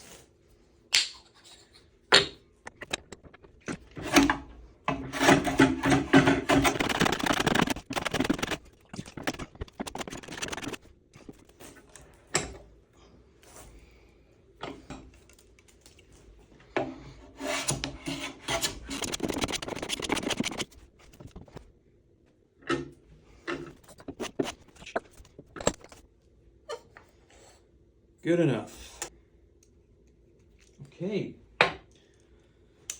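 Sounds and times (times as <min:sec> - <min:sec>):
hand plane shaving wood: 0:03.8 - 0:10.8, 0:17.4 - 0:21.5.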